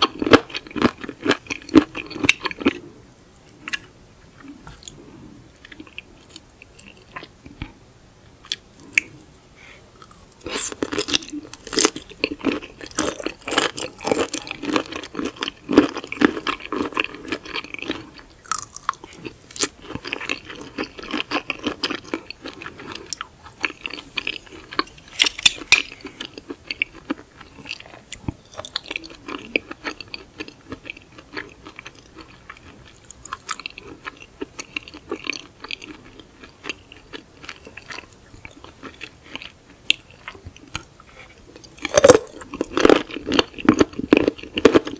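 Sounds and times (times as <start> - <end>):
wet crunchy chewing: 10.0 - 44.9.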